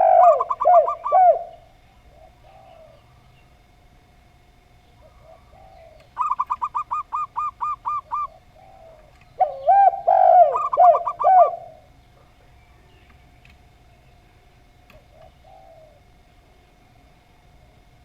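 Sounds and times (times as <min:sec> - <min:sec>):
short clipped dove coos: 0:00.0 - 0:03.0, 0:05.0 - 0:11.9, 0:14.9 - 0:16.0
deeper dove coo: 0:00.0 - 0:03.3, 0:04.9 - 0:12.0, 0:14.9 - 0:16.6.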